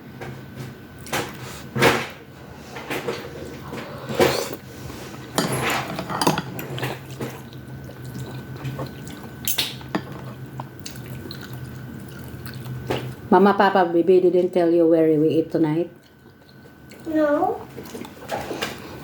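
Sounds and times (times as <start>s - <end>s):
utensils clinking against dishes: 5.3s - 7.5s, 8.2s - 10.4s.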